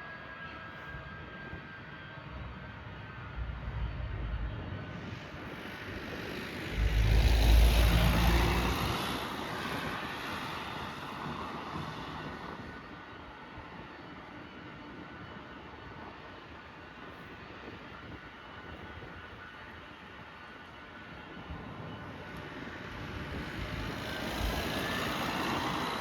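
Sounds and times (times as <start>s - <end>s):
jet airliner passing: 1.1s - 14.5s, 21.6s - 26.0s.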